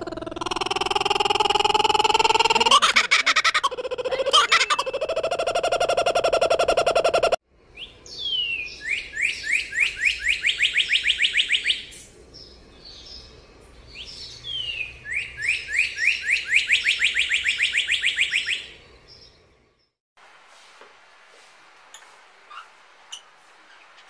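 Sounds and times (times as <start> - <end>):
bird singing: 4.0 - 20.0.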